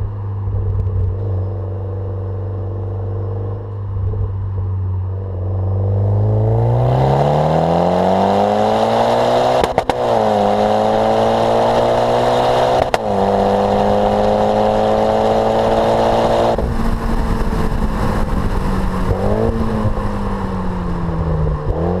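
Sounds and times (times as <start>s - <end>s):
car engine accelerating hard: 5.5s - 22.0s.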